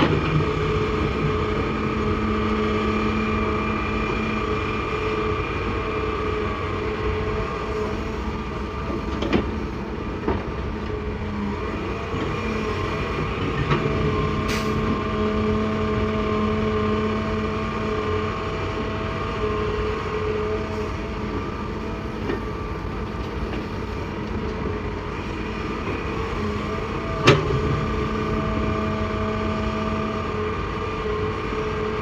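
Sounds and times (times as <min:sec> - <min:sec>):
excavator diesel engine: 0:00.0 - 0:32.0
hydraulic whine: 0:10.7 - 0:32.0.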